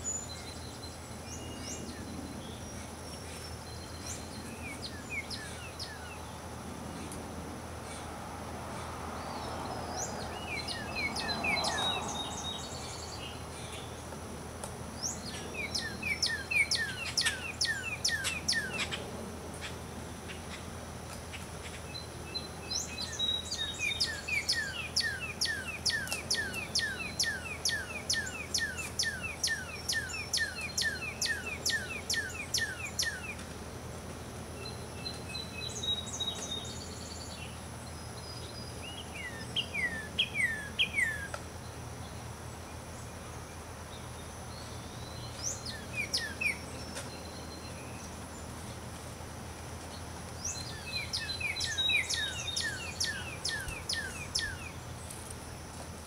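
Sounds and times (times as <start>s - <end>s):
low steady background noise: 0.0s - 56.0s
songbirds chirping: 0.0s - 56.0s.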